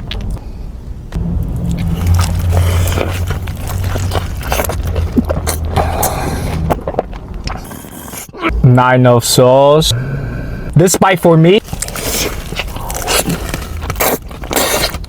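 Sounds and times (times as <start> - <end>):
low hum: 0.0 - 9.0
chewing crunchy food: 1.4 - 8.2, 11.6 - 15.0.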